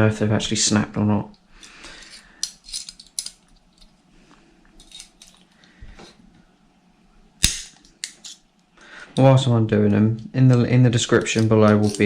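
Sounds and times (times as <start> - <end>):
metal tool clicks and scrapes: 1.9 - 3.9, 11.1 - 12.0
bolt breaking loose crack: 7.4 - 8.4.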